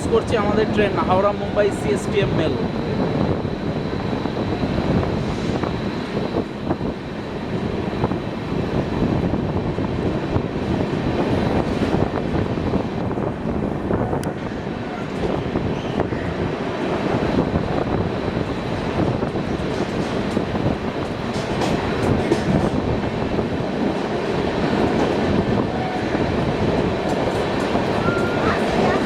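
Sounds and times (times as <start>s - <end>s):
high whine: 0.0s - 9.6s
train wheels rumbling and rattling: 0.0s - 29.0s.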